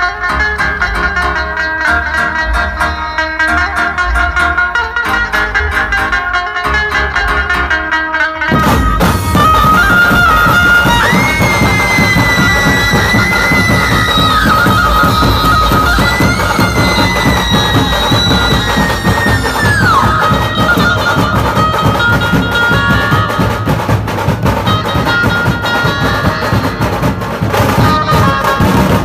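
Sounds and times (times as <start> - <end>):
swooping lead melody: 0.0 - 29.0
loud dense drumming: 8.5 - 29.0.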